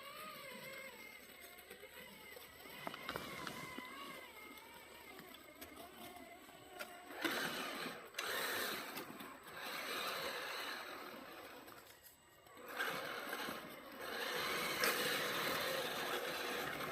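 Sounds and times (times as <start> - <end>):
electric motor and gears whining: 0.0 - 16.9
toy truck driving over ground: 0.0 - 16.9.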